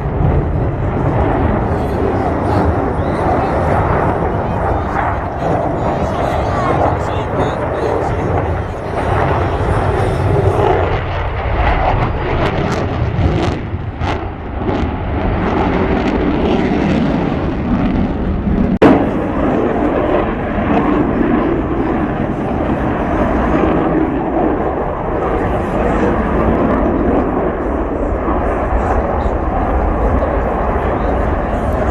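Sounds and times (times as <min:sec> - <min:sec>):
jet roar: 0:00.0 - 0:31.9.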